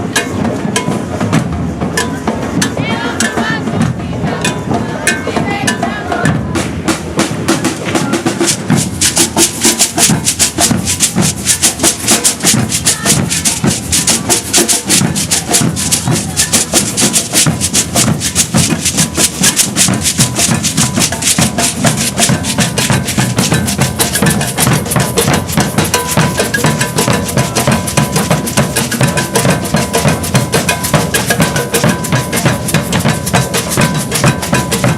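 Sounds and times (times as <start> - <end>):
drums playing fast rhythm: 0.0 - 34.9
clanking bell: 0.1 - 1.1, 18.8 - 34.9
shakers: 8.3 - 34.9.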